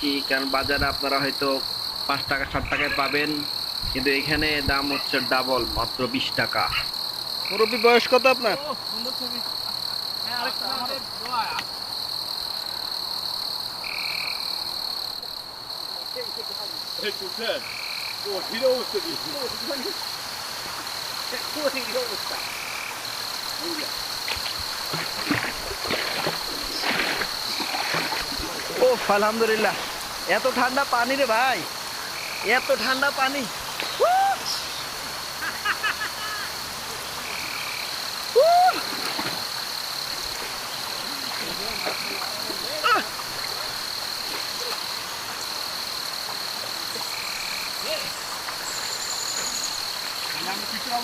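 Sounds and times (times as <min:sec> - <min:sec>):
high-pitched insect drone: 0:00.0 - 0:51.0
short croaking calls: 0:02.3 - 0:03.6
high-pitched animal trill: 0:02.6 - 0:03.3
falling water rushing: 0:18.3 - 0:51.0.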